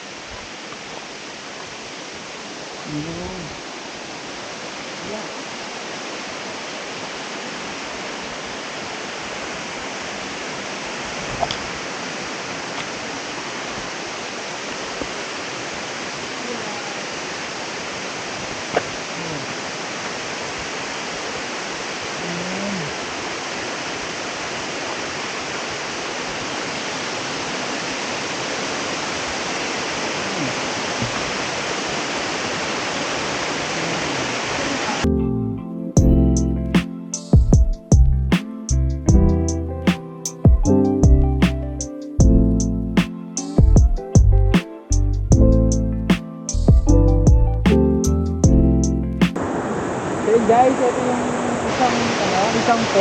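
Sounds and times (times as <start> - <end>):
waterfall pouring into pool: 3.5 - 35.1.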